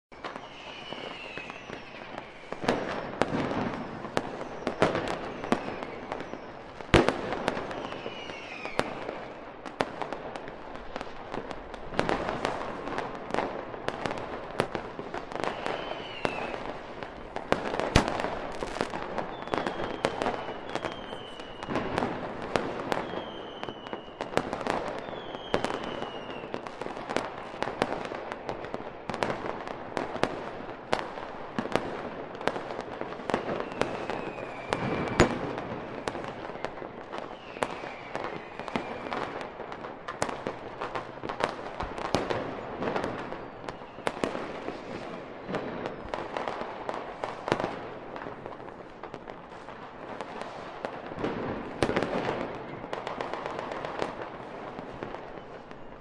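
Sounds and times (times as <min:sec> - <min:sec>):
fireworks bangs and crackling: 0:00.1 - 0:56.0
falling whistles: 0:00.2 - 0:02.6, 0:03.7 - 0:06.7, 0:07.6 - 0:08.9, 0:15.4 - 0:16.7, 0:19.2 - 0:21.9, 0:23.0 - 0:24.3, 0:25.0 - 0:26.5, 0:33.4 - 0:36.0, 0:36.6 - 0:39.2.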